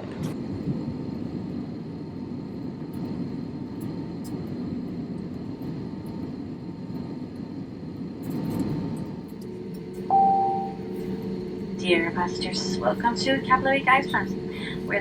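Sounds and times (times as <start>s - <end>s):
airliner cabin engine rumble: 0.0s - 15.0s
faint steady hum: 8.6s - 15.0s.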